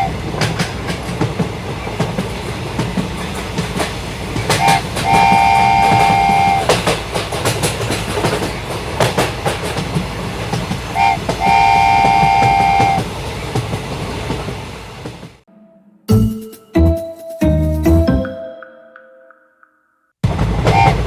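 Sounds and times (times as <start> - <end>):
train rumble and clicking wheels: 0.0 - 15.5, 20.2 - 21.0
train horn: 4.6 - 6.7, 11.0 - 13.0, 20.7 - 21.0.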